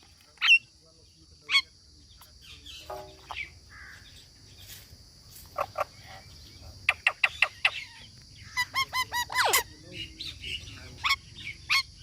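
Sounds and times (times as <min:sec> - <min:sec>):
parrot calls: 0:06.9 - 0:09.7.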